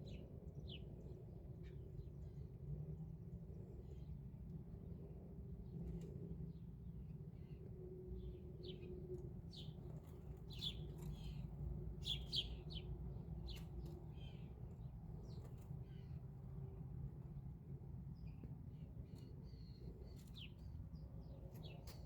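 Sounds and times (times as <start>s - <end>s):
faint bird chirping: 10.5s - 16.2s.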